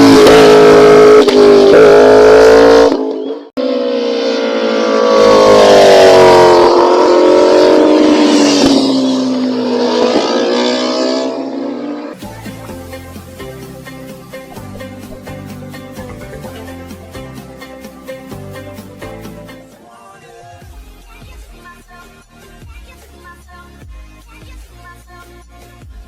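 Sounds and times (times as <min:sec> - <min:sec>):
motorcycle engines accelerating: 0:00.0 - 0:17.9.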